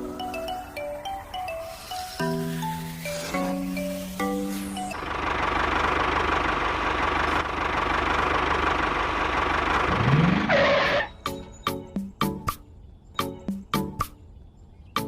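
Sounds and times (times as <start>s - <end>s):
engine running: 0.0s - 11.2s.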